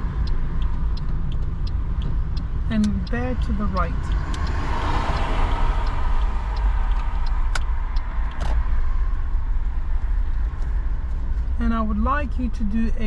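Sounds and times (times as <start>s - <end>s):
sharp clicks: 0.0s - 8.7s
car interior rumble: 0.0s - 13.0s.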